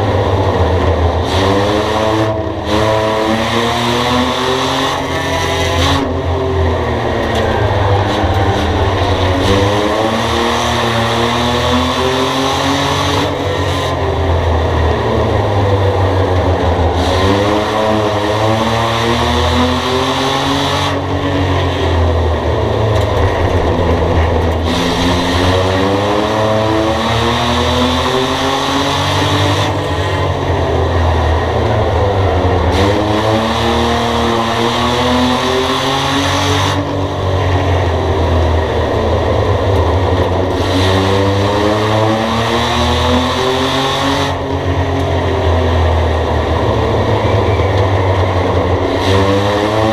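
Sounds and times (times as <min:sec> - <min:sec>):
race car engine accelerating: 0:00.0 - 0:49.9
low rumble: 0:06.1 - 0:12.1, 0:21.0 - 0:28.6, 0:29.7 - 0:34.4.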